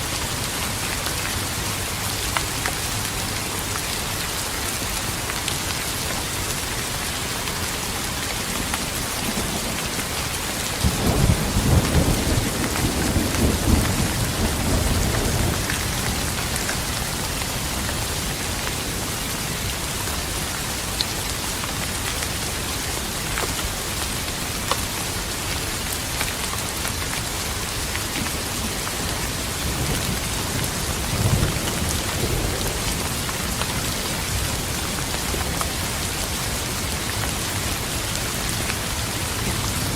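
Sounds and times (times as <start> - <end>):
steady rain pouring: 0.0 - 39.9
thunder rumbling: 9.2 - 18.0.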